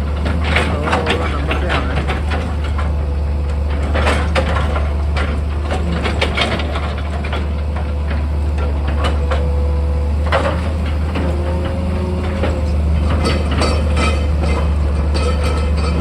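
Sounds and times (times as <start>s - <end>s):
rock and soil crunching: 0.0s - 8.7s
excavator diesel engine humming: 0.0s - 16.0s.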